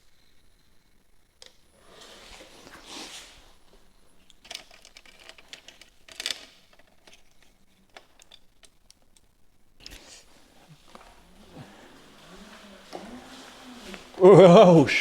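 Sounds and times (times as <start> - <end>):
soft rustles: 1.8 - 6.0, 9.9 - 14.4.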